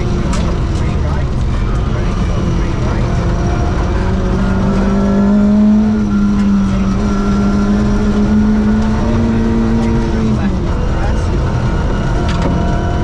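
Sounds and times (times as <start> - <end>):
car engine pulling: 0.0 - 13.0
tyres rumbling on gravel: 0.0 - 13.0.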